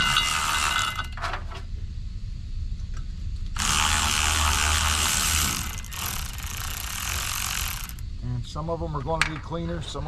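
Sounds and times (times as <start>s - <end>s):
power tool running: 0.0s - 1.2s, 3.6s - 8.0s.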